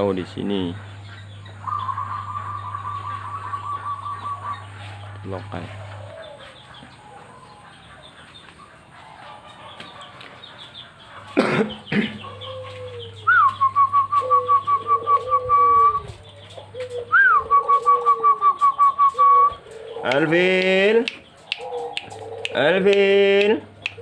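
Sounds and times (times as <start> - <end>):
bird staccato notes: 0.0 - 7.2, 11.1 - 24.0
doves cooing: 0.0 - 24.0.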